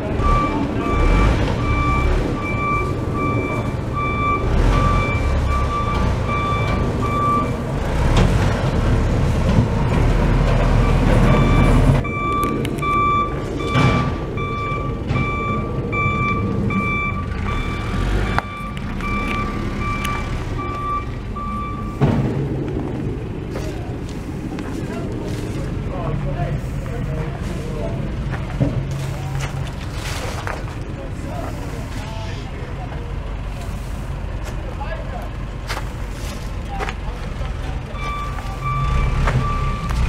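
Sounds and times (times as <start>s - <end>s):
truck reversing alarm beeping: 0.0s - 8.1s, 9.7s - 22.4s, 37.8s - 40.0s
diesel engine running: 0.0s - 40.0s.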